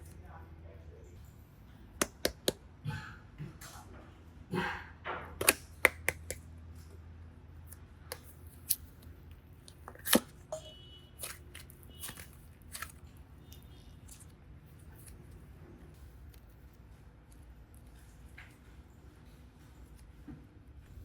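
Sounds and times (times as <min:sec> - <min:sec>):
sharp clicks of craft tools: 0:02.0 - 0:02.6, 0:05.4 - 0:06.4.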